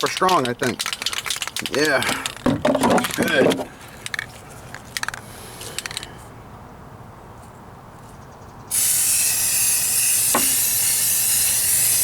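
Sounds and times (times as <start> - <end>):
quick clicks: 0.0 - 2.4
aerosol can spraying hiss: 8.7 - 12.0.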